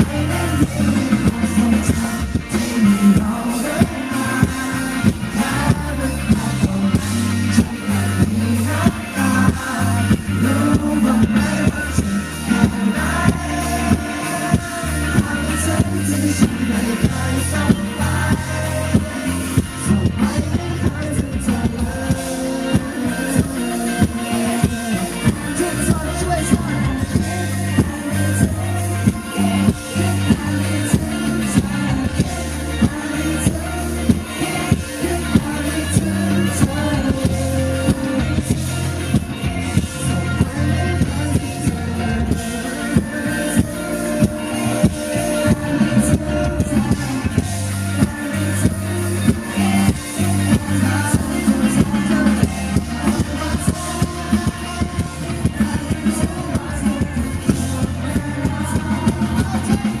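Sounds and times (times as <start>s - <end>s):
bass guitar: 0.0s - 60.0s
drums steady beat: 0.0s - 60.0s
live pop-rock band: 0.0s - 60.0s.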